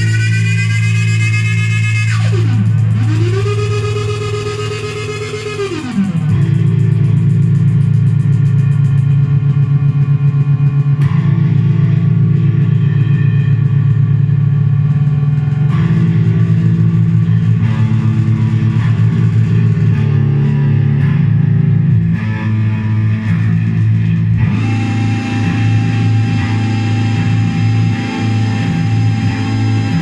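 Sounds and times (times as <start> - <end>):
distorted low synthesizer drones: 0.0 - 30.0
steady high synthesizer tone: 0.0 - 30.0.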